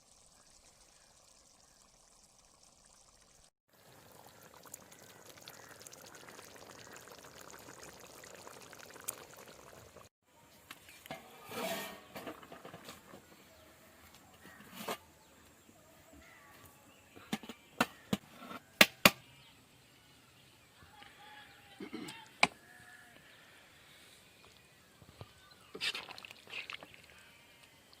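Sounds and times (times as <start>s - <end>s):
faint bird calls: 4.2s - 7.4s.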